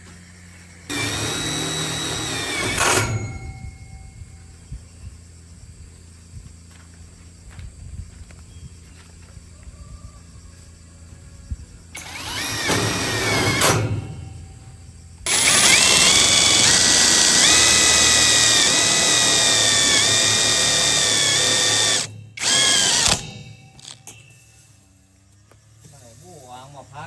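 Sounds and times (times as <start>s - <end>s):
power tool motor whining: 0.9s - 3.9s, 12.0s - 24.1s.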